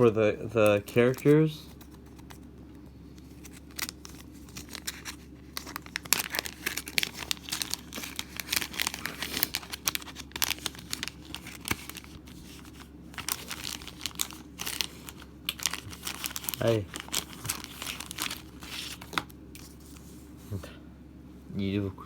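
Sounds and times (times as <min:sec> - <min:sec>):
packaging crinkling and tearing: 0:03.2 - 0:20.0.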